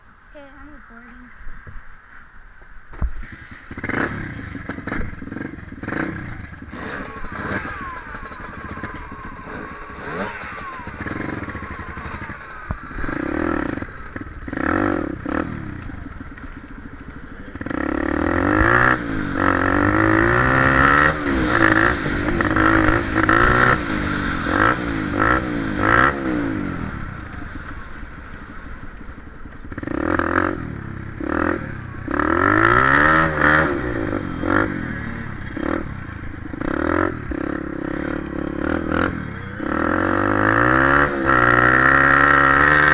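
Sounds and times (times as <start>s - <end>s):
dirt bike engine revving: 2.9s - 42.9s.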